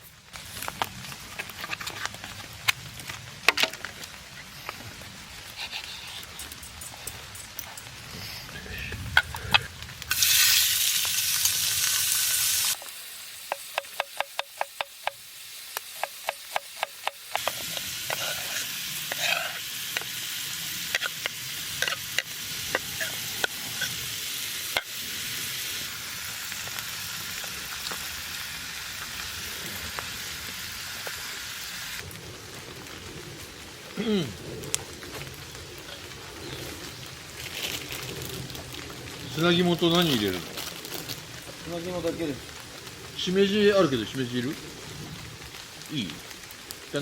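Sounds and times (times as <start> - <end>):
food sizzling in a pan: 9.3 - 32.0
stirring scrapes: 17.3 - 20.1.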